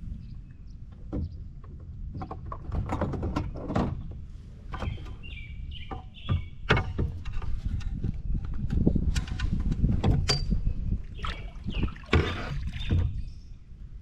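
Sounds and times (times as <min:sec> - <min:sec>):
bird chirping: 0:04.7 - 0:06.7, 0:10.5 - 0:13.7.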